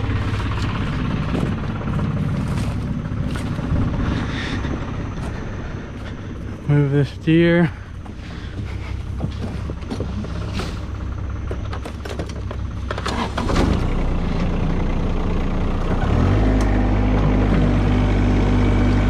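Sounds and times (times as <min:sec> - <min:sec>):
tractor engine running: 0:00.0 - 0:19.0
clanks and knocks: 0:08.0 - 0:13.8.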